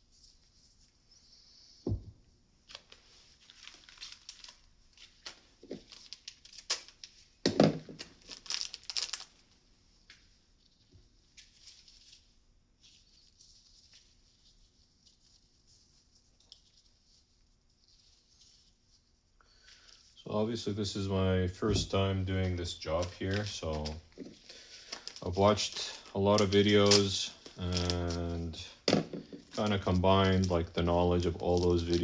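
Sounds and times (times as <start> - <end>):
loud knocks: 1.9 - 2.2
crinkling and rustling: 1.9 - 32.0.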